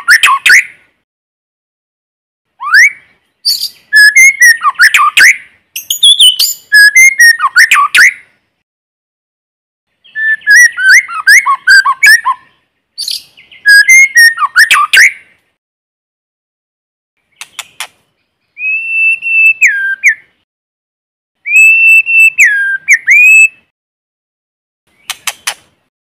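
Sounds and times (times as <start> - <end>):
bird singing whistles and chirps: 0.0 - 0.8, 2.6 - 8.3, 10.0 - 15.2, 17.3 - 20.4, 21.4 - 23.7.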